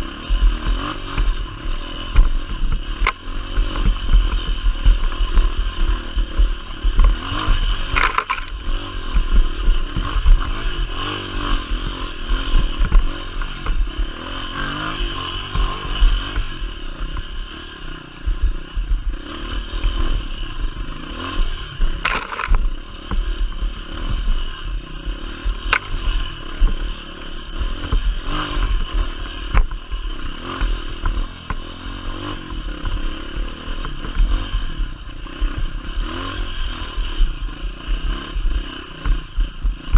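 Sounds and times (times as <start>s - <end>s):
motorcycle engine running: 0.0s - 39.9s
sharp knocks and rattles: 2.1s - 10.6s, 21.8s - 24.2s.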